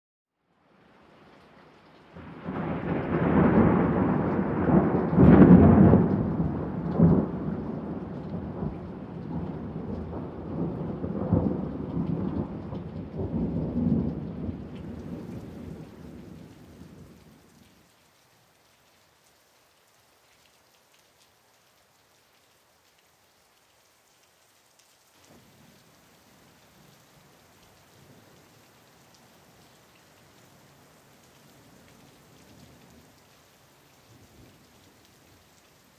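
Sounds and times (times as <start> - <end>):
faint steady hiss: 0.4 - 5.8, 13.2 - 35.9
thunder rumbling: 2.2 - 17.2.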